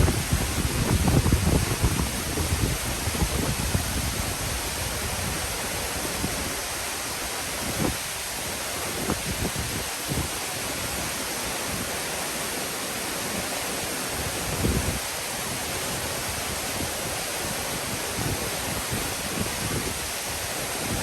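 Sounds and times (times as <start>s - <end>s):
wind bumps on microphone: 0.0s - 6.6s, 7.5s - 8.0s, 8.9s - 10.4s, 14.4s - 15.0s, 17.9s - 20.1s
waterfall rushing: 0.0s - 21.0s.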